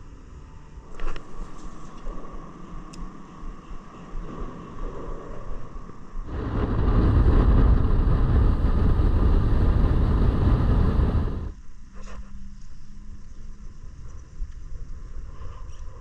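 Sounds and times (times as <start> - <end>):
rushing wind: 0.9 - 11.6.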